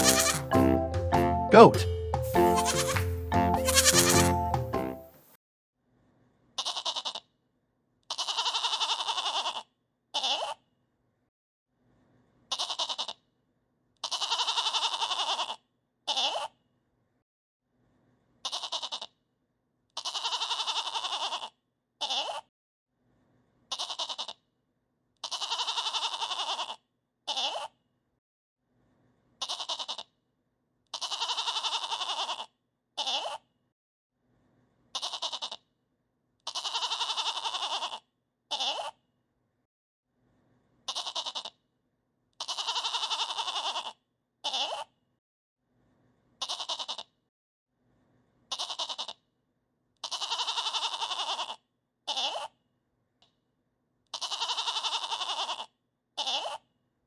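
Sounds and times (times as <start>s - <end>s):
goat bleating: 0.0s - 0.6s, 2.4s - 4.4s, 6.6s - 7.2s, 8.1s - 10.6s, 12.5s - 13.2s, 14.0s - 16.5s, 18.4s - 19.1s, 20.0s - 22.4s, 23.7s - 24.4s, 25.2s - 27.7s, 29.4s - 30.1s, 30.9s - 33.4s, 35.0s - 35.6s, 36.5s - 39.0s, 40.9s - 41.6s, 42.4s - 44.9s, 46.4s - 47.1s, 48.5s - 49.2s, 50.0s - 52.5s, 54.1s - 56.6s.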